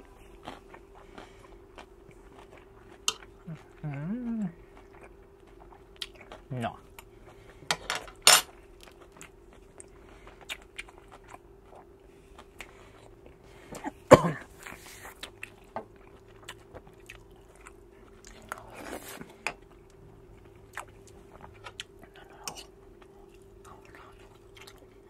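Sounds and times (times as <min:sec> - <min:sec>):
faint steady hum: 0:00.0 - 0:25.0
close chewing with mouth clicks: 0:00.1 - 0:07.5, 0:08.7 - 0:25.0.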